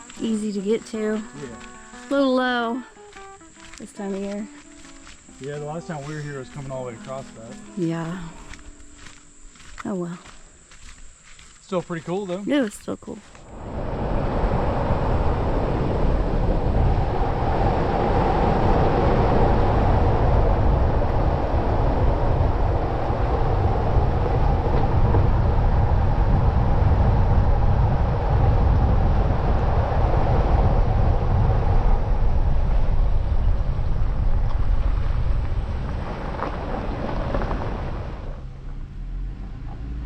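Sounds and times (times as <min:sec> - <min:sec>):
vehicle driving road noise: 0:13.4 - 0:40.0.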